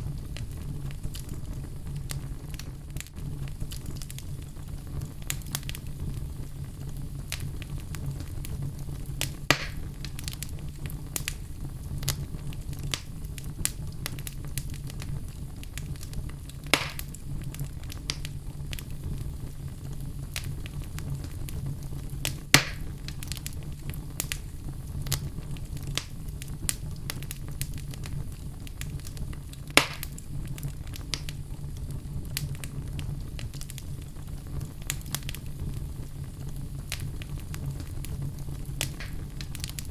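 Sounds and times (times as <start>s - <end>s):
fire crackling: 0.0s - 39.9s
fire flames rumbling: 0.0s - 39.9s
sharp fire pops: 0.0s - 39.9s.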